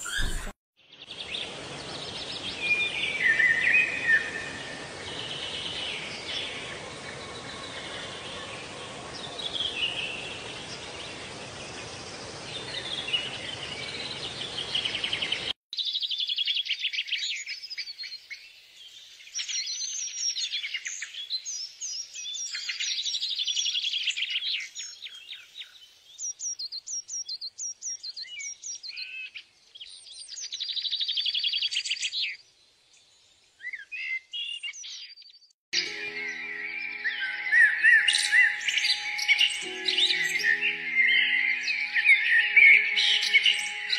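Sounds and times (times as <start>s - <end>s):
birds chirping and singing: 0.0s - 11.2s, 33.6s - 43.9s.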